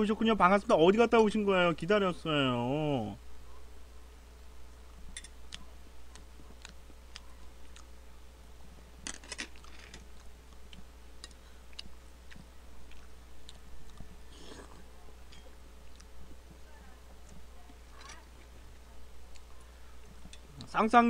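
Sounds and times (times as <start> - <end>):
man chewing rice: 5.0 - 8.3, 9.0 - 16.6.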